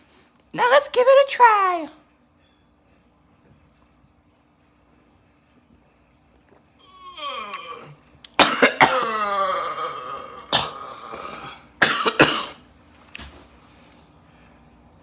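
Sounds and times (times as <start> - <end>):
man coughing and gagging: 7.2 - 12.6.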